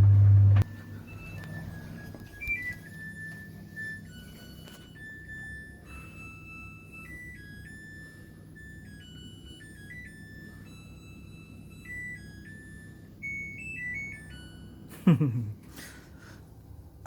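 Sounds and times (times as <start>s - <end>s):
electronic beep melody: 0.6s - 14.9s.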